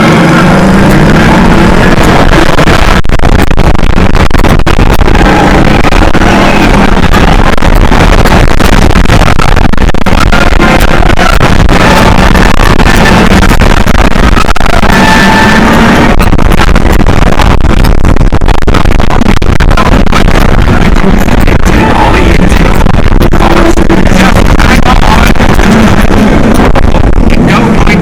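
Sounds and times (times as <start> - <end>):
ride music: 0.0 - 3.0, 4.0 - 17.8, 19.0 - 28.0
roller coaster rumbling on track: 0.0 - 3.0, 18.9 - 28.0
wind on microphone: 0.0 - 28.0.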